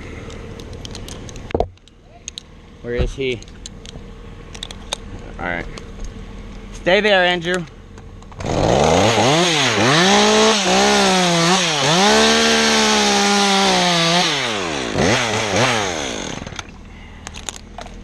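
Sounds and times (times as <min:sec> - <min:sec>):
chainsaw running: 0:08.3 - 0:16.8.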